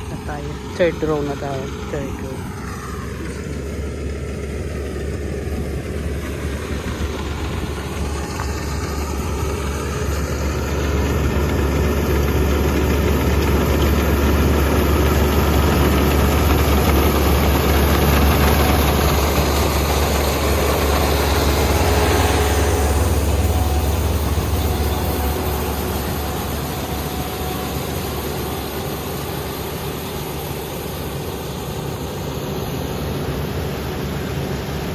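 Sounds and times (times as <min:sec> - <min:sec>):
combine harvester engine droning: 0:00.0 - 0:34.9.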